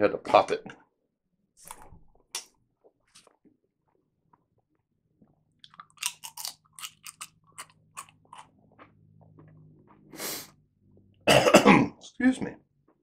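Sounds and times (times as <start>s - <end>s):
man chewing food: 1.6s - 11.1s.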